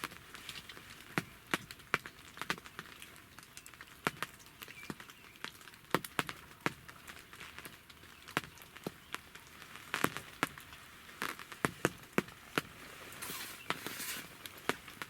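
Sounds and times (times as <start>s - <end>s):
soft rustle: 0.0s - 1.7s, 9.5s - 15.0s
water drops ticking: 0.7s - 12.7s.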